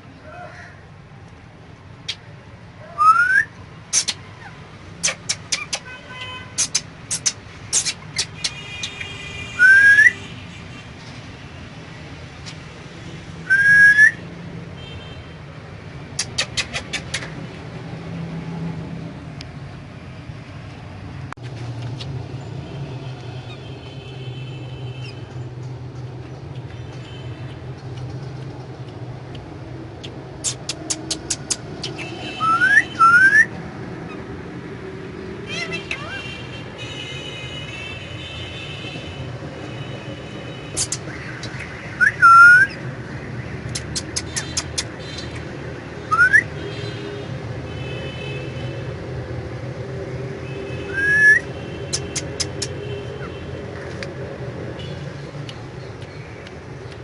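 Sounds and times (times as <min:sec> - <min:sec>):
parrot chirping and whistling: 0:03.0 - 0:04.2, 0:09.6 - 0:10.2, 0:13.5 - 0:14.2, 0:30.4 - 0:33.5, 0:42.0 - 0:42.8, 0:46.1 - 0:46.5, 0:50.9 - 0:52.7.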